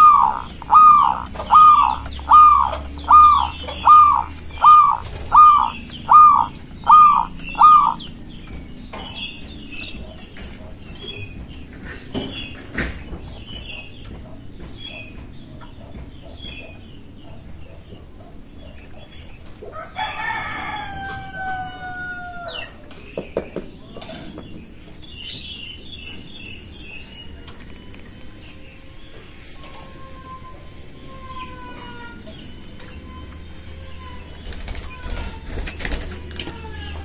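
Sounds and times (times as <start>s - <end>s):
small birds chirping: 0.0s - 20.8s, 22.3s - 37.0s
rooster crowing: 19.7s - 22.7s.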